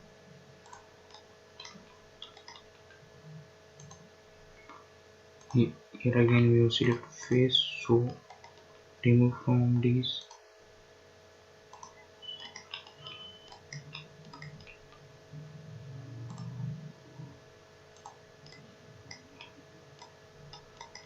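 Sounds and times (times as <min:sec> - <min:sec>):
computer mouse clicks: 0:00.6 - 0:03.0, 0:03.8 - 0:04.8, 0:05.4 - 0:05.6, 0:08.1 - 0:08.7, 0:10.2 - 0:10.5, 0:11.7 - 0:15.0, 0:16.2 - 0:17.3, 0:17.9 - 0:21.0
faint low rumble: 0:13.8 - 0:17.7.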